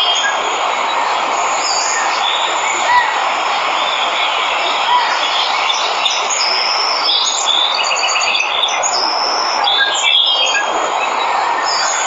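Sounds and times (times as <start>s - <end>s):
waterfall rushing: 0.0s - 12.0s
birds chirping and trilling: 1.1s - 12.0s.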